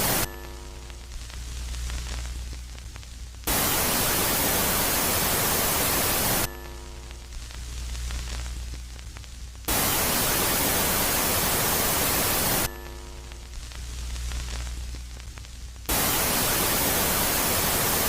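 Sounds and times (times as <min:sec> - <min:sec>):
electronic static hiss: 0:00.0 - 0:18.0
low hum: 0:06.5 - 0:10.1, 0:12.6 - 0:15.9.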